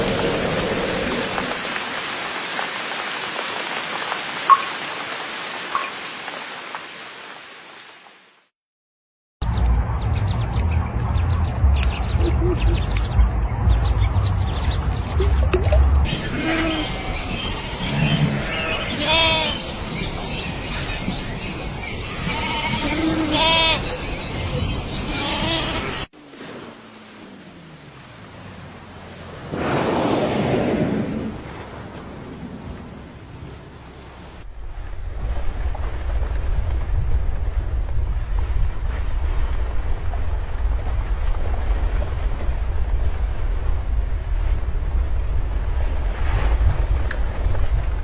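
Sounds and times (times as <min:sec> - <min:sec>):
steady rain: 0:00.0 - 0:08.5, 0:25.5 - 0:48.0
water drips: 0:01.2 - 0:07.1, 0:14.6 - 0:16.1
animal bleat-like cries: 0:16.2 - 0:19.7, 0:22.1 - 0:23.9, 0:25.1 - 0:26.0.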